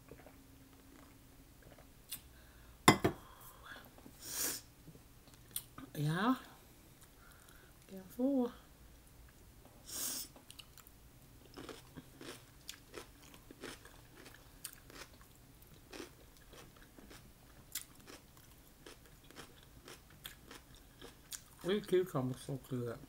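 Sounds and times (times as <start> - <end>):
chewing with small crunches: 0.0 - 2.3, 10.4 - 22.0.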